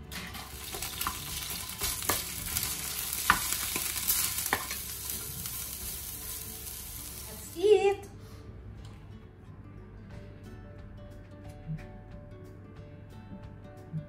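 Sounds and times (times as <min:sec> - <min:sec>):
onions sizzling in a pan: 0:00.0 - 0:08.0
spatula tapping a pan: 0:03.2 - 0:04.9.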